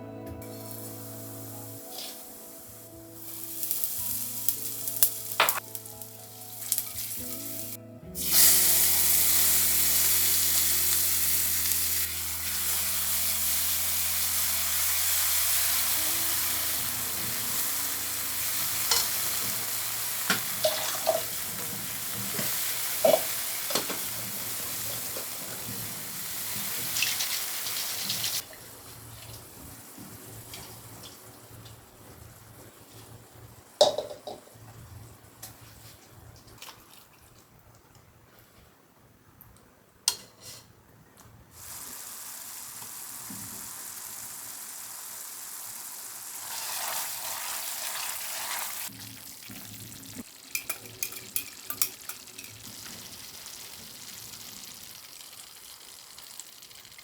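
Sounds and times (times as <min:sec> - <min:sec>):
food sizzling in a pan: 0:00.4 - 0:35.9, 0:41.5 - 0:57.0
utensil clicking on pan: 0:50.5 - 0:52.6.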